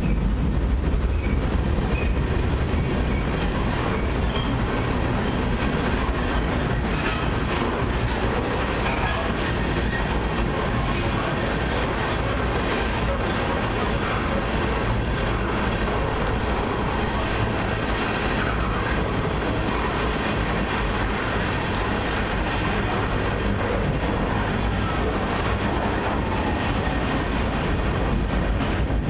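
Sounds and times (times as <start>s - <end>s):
steel wheels rumbling on rail: 0.0s - 29.0s
faint high squeaks: 17.7s - 18.0s.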